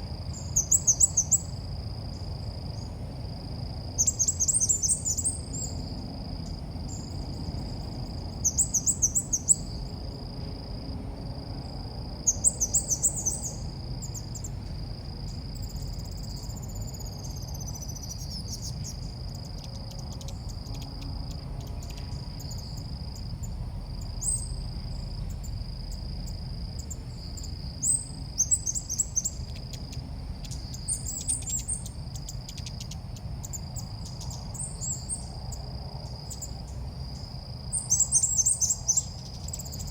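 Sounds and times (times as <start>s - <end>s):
low background hum: 0.0s - 39.9s
birds chirping rapidly: 4.0s - 9.9s, 12.3s - 14.5s, 26.8s - 35.2s.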